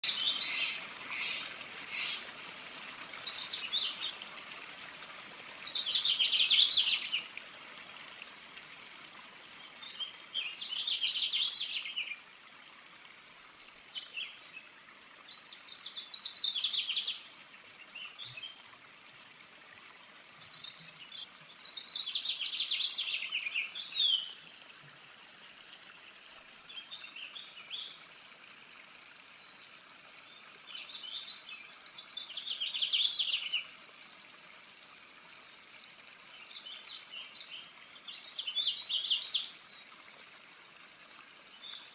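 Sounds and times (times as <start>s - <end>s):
birds singing: 0.0s - 2.2s, 2.8s - 4.2s, 5.5s - 12.2s, 14.0s - 28.0s, 30.3s - 33.7s, 36.1s - 39.8s
background hiss: 0.0s - 41.9s.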